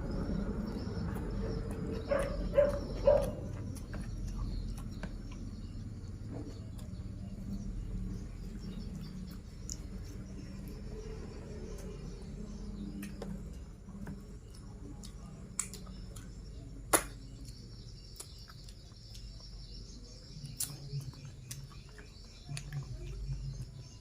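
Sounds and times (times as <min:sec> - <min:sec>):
chewing and mouth clicks: 0:00.3 - 0:10.8, 0:12.7 - 0:24.0.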